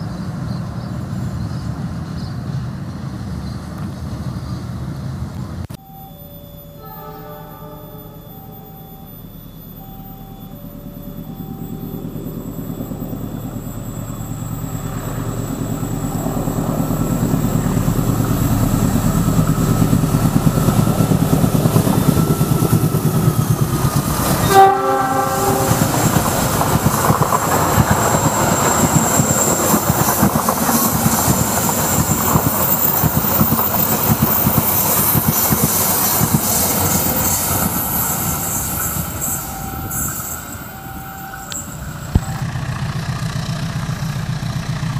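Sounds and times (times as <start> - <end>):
train horn blast: 6.8 - 8.4, 24.2 - 26.6
train wheels rumbling: 7.8 - 44.9
passing train cars rattling: 10.4 - 44.9.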